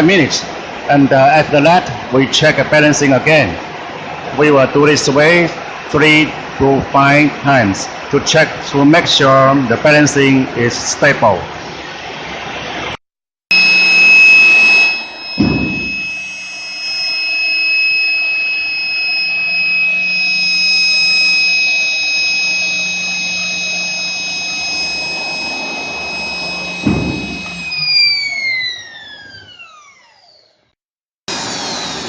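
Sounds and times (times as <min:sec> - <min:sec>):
jet engine high-pitched whine: 0:11.4 - 0:32.0
low thumps: 0:15.3 - 0:16.2, 0:26.4 - 0:28.1.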